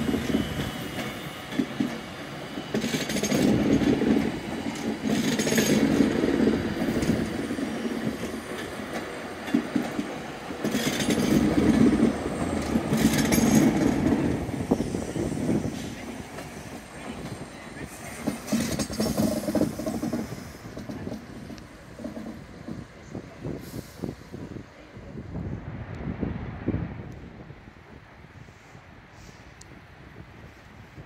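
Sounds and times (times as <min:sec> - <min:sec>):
train wheels clattering over rails: 0:00.0 - 0:24.2.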